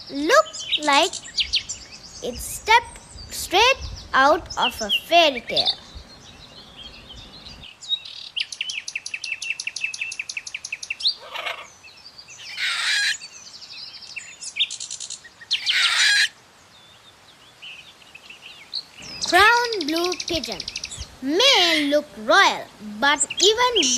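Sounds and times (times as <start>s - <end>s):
high bird chirps: 0.0s - 16.3s, 17.6s - 21.8s, 23.0s - 23.9s
harsh bird squawks: 11.1s - 11.7s, 12.5s - 13.2s, 15.5s - 16.4s
bird chattering: 19.0s - 23.9s.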